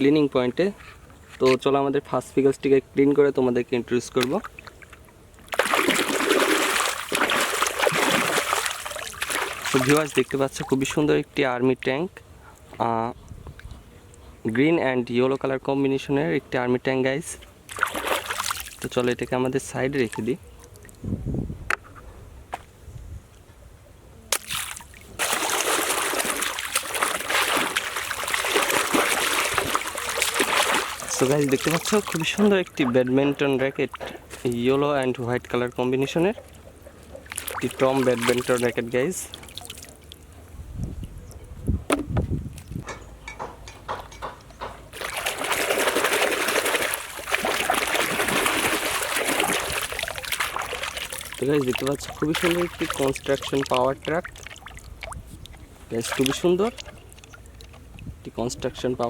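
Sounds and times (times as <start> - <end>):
water splashing: 4.2 - 10.9, 17.7 - 19.2, 24.4 - 34.8, 35.4 - 40.3, 44.9 - 58.0.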